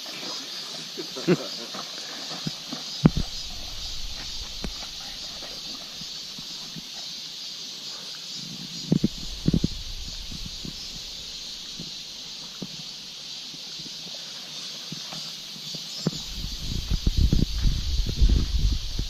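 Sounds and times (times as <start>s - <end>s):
insects buzzing: 0.0s - 19.0s
low rumble: 3.1s - 6.1s, 9.0s - 11.8s
low thumps: 3.1s - 6.1s, 8.9s - 12.0s, 16.2s - 19.0s.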